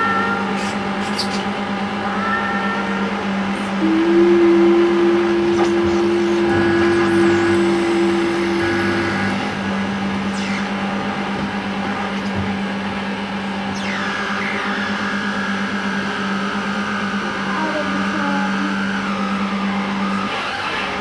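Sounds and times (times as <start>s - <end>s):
steady low drone: 0.0s - 20.3s
higher held tone: 1.8s - 12.1s.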